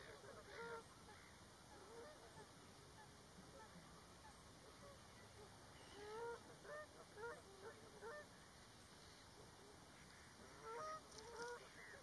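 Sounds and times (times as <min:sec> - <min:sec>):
birds calling faintly: 0:00.0 - 0:12.0.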